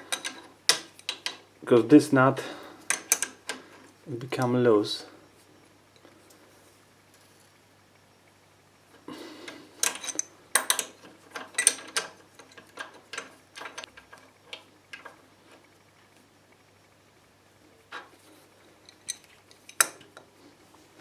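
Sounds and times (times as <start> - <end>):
spanner clicking on metal nut: 9.8 - 13.9.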